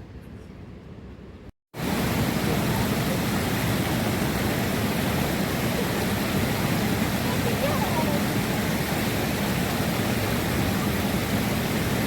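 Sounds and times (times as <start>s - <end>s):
heavy rain pouring: 1.8s - 12.0s.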